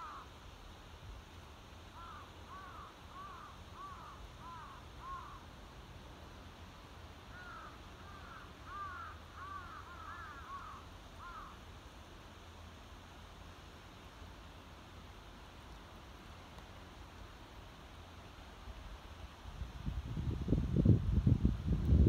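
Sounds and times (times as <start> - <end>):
bird calling: 0.0 - 0.3, 2.0 - 5.4, 7.3 - 11.6.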